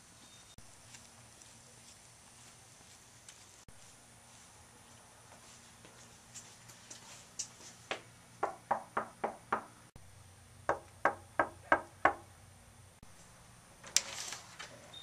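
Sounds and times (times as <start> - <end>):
knocking on a door: 7.9 - 9.7, 10.7 - 12.2.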